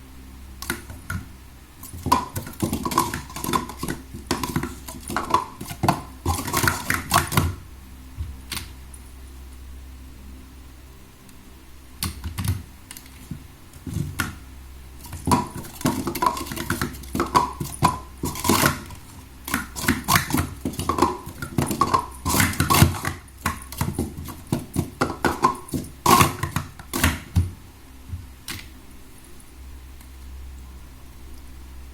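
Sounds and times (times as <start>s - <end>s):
plastic cups clattering on table: 0.6s - 7.6s, 15.0s - 27.5s.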